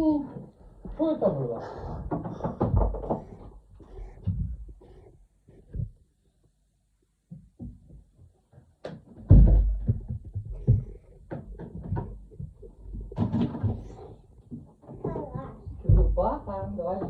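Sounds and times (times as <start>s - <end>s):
household objects knocking: 2.0s - 3.5s, 9.2s - 14.0s, 14.6s - 17.0s
heavy thump: 9.3s - 11.0s.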